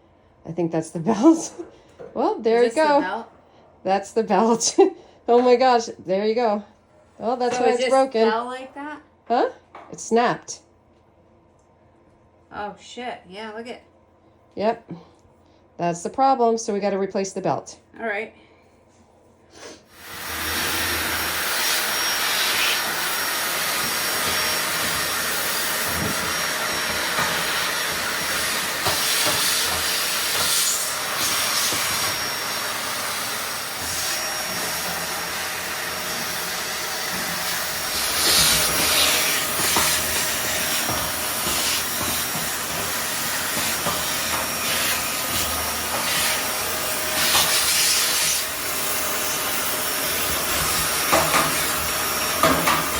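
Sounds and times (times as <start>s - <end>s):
vacuum cleaner running: 19.9s - 52.9s.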